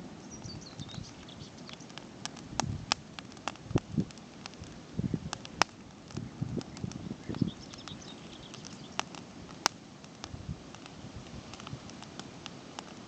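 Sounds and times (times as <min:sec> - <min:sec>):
campfire crackling: 0:00.0 - 0:13.0
bird chirping: 0:00.2 - 0:01.9, 0:06.2 - 0:09.1.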